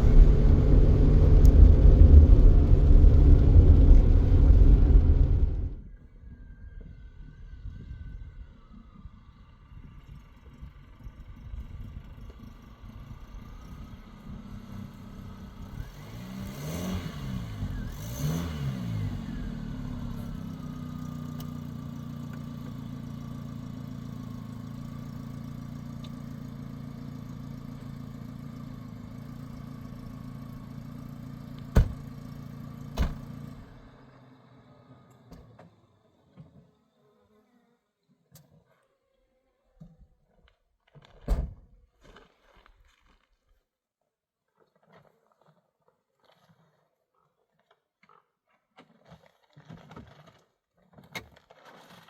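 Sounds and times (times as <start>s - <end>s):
vehicle engine revving: 0.0s - 5.9s, 15.4s - 20.8s.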